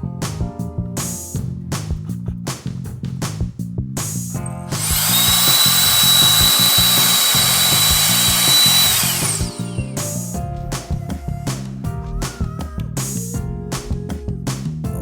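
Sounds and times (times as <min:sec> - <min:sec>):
mini jet fan whining: 0:04.7 - 0:10.0.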